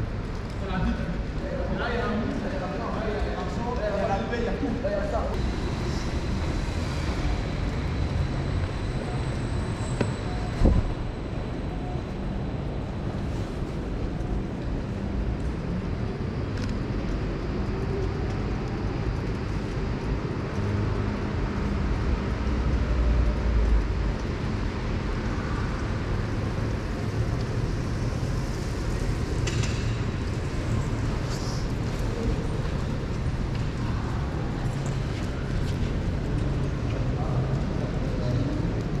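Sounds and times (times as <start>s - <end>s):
traffic rumble: 0.0s - 39.0s.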